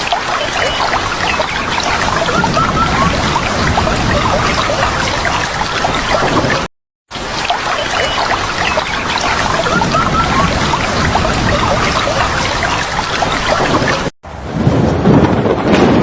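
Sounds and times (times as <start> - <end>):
water splashing: 0.0 - 14.1
bird chirps: 7.7 - 12.6.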